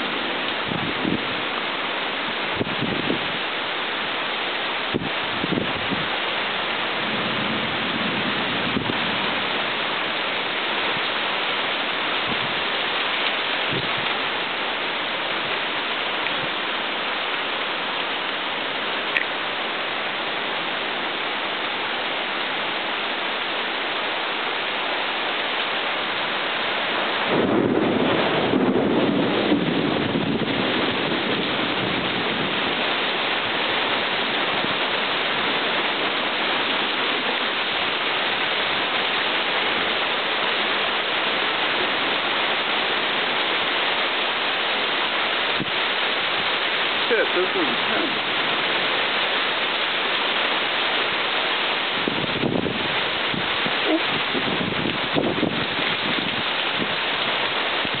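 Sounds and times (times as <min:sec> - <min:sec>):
heavy rain falling: 0:00.0 - 0:58.0
thunder rumbling: 0:07.0 - 0:10.0, 0:27.2 - 0:37.4.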